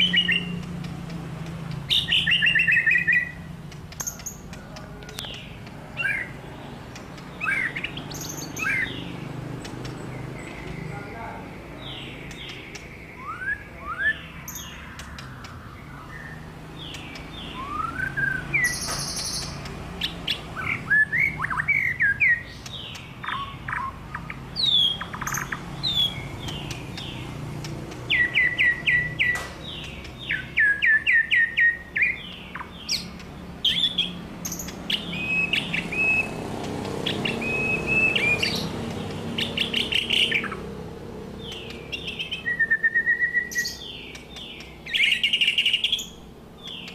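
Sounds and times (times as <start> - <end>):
songbird singing whistles: 0.0 - 0.6, 1.9 - 4.5, 7.4 - 9.0, 12.3 - 27.2, 28.1 - 29.5, 30.2 - 36.4, 37.0 - 38.7, 41.4 - 44.2, 44.9 - 46.9.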